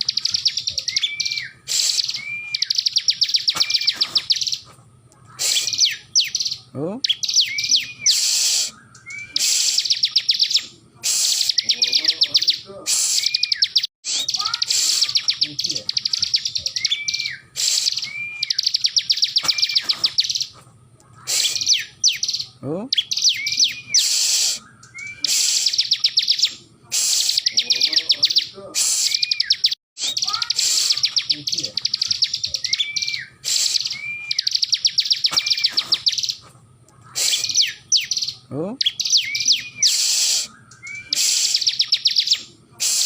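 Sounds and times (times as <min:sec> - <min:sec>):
bird singing high sharp notes: 0:00.0 - 0:04.7, 0:05.4 - 0:20.6, 0:21.2 - 0:36.4, 0:37.1 - 0:43.0.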